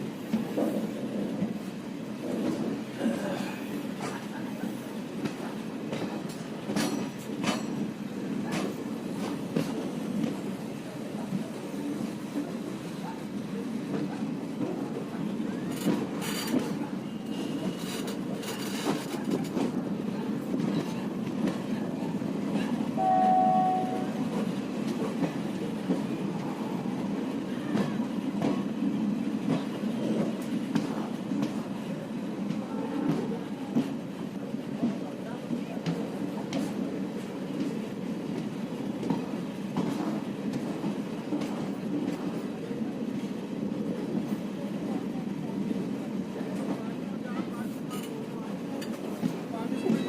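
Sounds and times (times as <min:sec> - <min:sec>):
train rumbling with wheel clatter: 0:00.0 - 0:50.0
train horn blast: 0:23.0 - 0:24.3.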